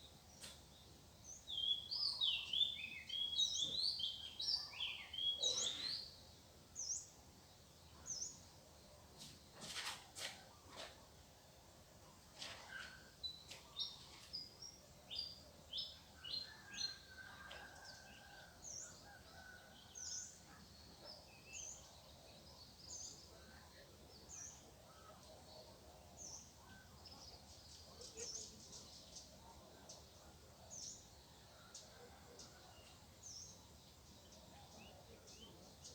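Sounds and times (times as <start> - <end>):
small birds chirping: 0.0 - 8.5.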